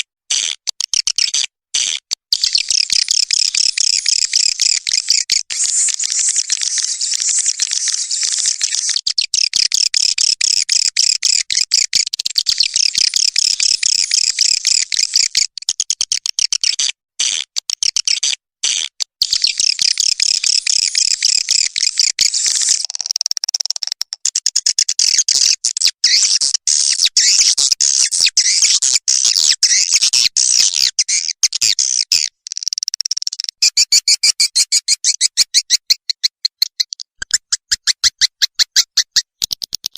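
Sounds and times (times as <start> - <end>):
quick clicking chirps: 0.3 - 39.9
swiftlets twittering chirps: 31.0 - 39.6.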